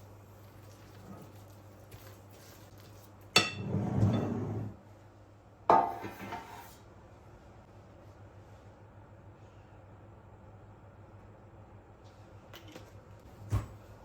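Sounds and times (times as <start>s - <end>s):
kitchenware clanks: 3.4s - 4.6s.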